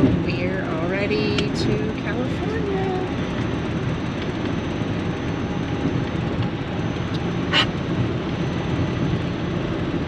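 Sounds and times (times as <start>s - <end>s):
car cabin road and engine noise: 0.0s - 10.0s.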